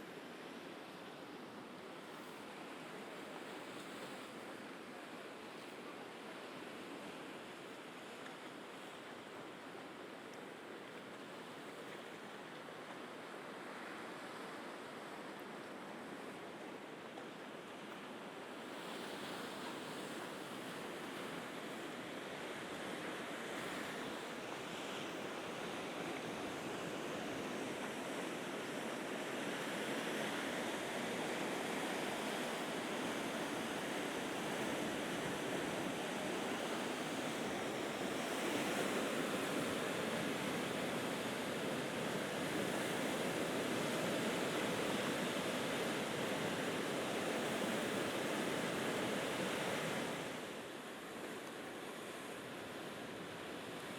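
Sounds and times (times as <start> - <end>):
sea waves washing against shore: 18.7 - 51.1.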